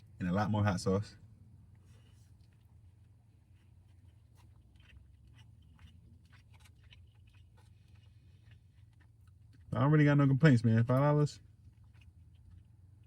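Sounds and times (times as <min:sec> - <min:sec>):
faint low room hum: 0:00.0 - 0:13.0.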